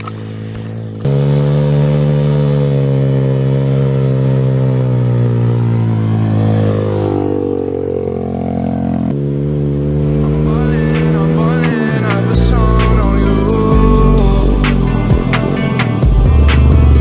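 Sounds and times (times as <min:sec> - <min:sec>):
motorbike engine running: 0:00.0 - 0:17.0.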